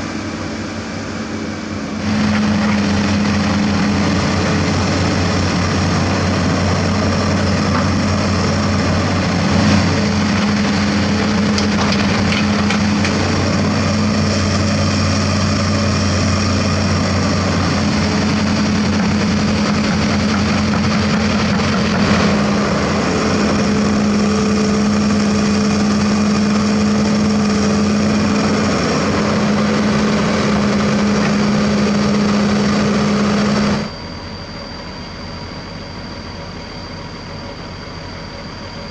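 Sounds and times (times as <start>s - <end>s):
bulldozer diesel engine drone: 0.0s - 38.9s.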